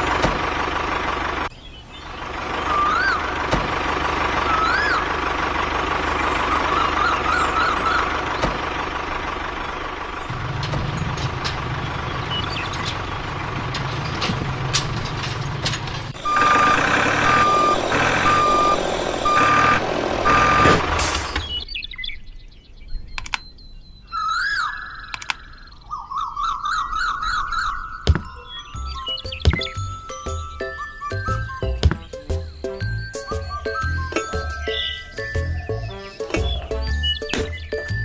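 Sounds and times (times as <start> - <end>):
vehicle engine running: 0.0 - 21.6, 28.1 - 38.0
truck reversing alarm beeps: 2.5 - 21.6, 28.0 - 38.0.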